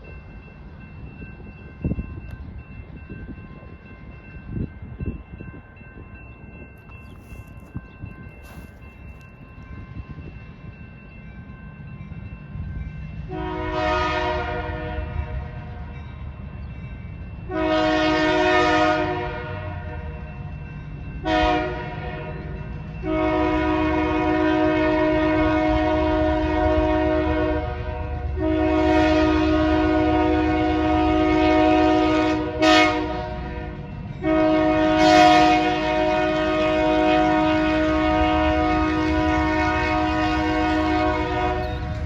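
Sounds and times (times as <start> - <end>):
locomotive rumble: 13.2 - 42.0
locomotive air horn blasts: 13.3 - 15.6, 17.5 - 20.1, 21.2 - 22.3, 23.0 - 41.9.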